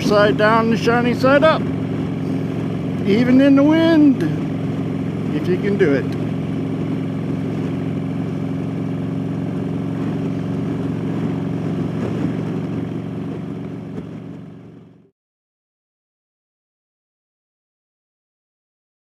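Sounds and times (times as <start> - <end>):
motorcycle engine running: 0.0 - 15.1
wind noise on microphone: 6.2 - 14.6.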